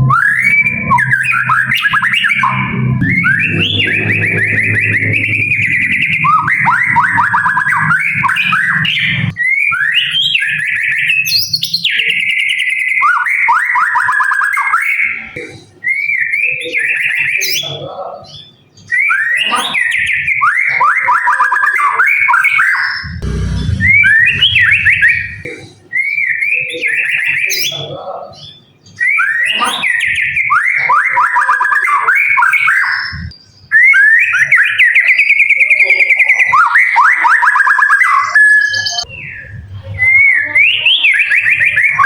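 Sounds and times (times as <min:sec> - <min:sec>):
low droning hum: 0:00.0 - 0:09.4, 0:23.1 - 0:25.6.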